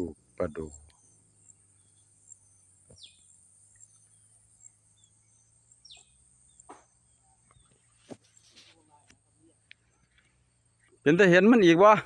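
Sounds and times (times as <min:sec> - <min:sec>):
high insect drone: 0:00.0 - 0:08.4.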